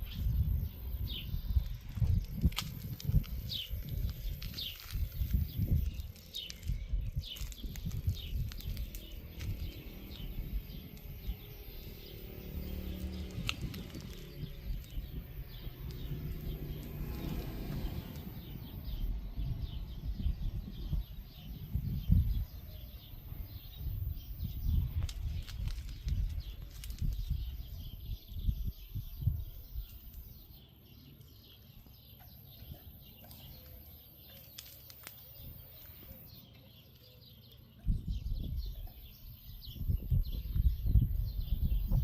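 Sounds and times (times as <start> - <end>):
low rumble: 0.0 - 29.9
small birds chirping: 0.0 - 42.0.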